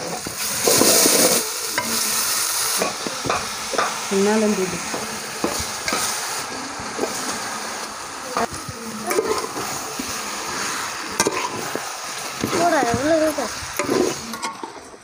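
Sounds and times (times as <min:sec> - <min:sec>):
chicken sizzling in a pan: 0:00.0 - 0:15.0
spoon stirring and clicking on pan: 0:02.8 - 0:04.0, 0:08.4 - 0:10.1, 0:11.2 - 0:11.8.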